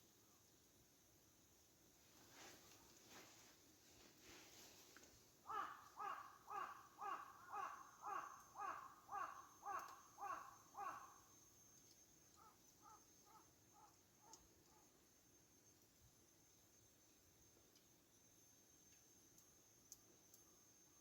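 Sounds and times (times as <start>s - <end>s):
faint short bird calls: 5.4s - 11.3s
bird making harsh calls: 5.5s - 11.0s.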